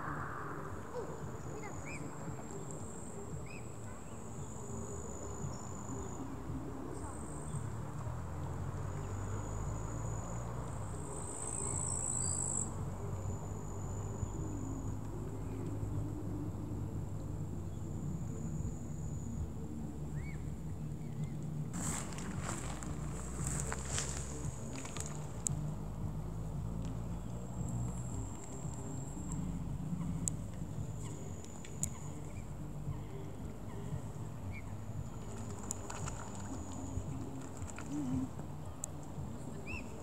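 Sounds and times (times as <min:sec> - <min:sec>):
low rumble: 0:00.0 - 0:03.6
insects trilling: 0:09.0 - 0:15.9.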